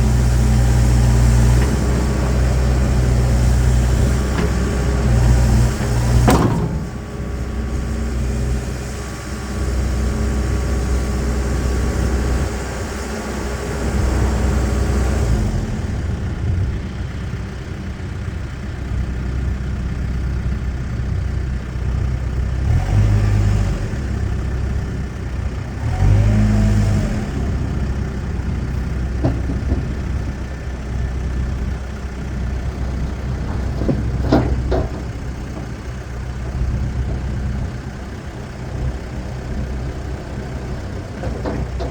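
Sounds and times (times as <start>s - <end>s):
backhoe diesel engine running: 0.0s - 41.9s
sharp knocks: 6.1s - 7.0s.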